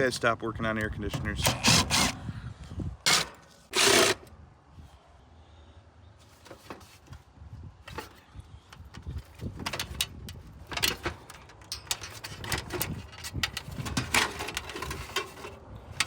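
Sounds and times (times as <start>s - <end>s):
metal parts rattling: 9.1s - 16.0s.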